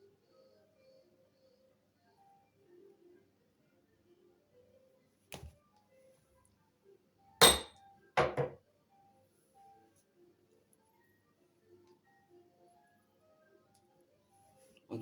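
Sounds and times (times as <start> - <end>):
faint background music: 0.0 - 15.0
hard objects clattering with metallic ring: 7.4 - 8.6.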